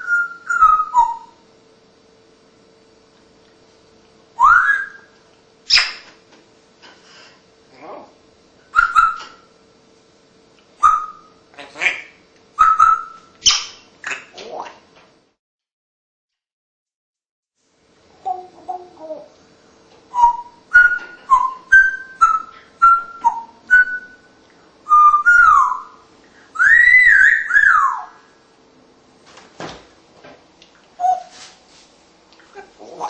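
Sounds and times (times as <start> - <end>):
parrot whistling: 0.0 - 1.4, 4.4 - 6.0, 8.7 - 9.4, 10.8 - 14.3, 20.1 - 28.2, 31.0 - 31.4.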